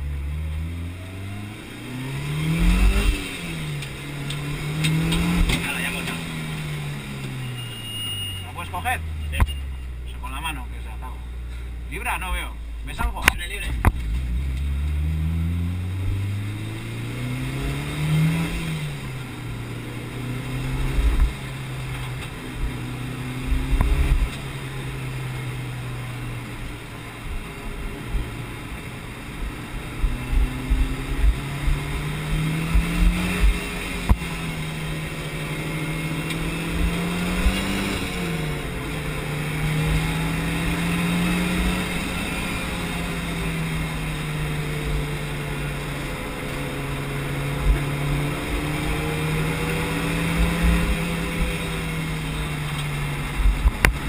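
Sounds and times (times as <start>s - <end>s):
car engine revving: 0.0s - 54.0s
low thumps: 29.4s - 34.6s.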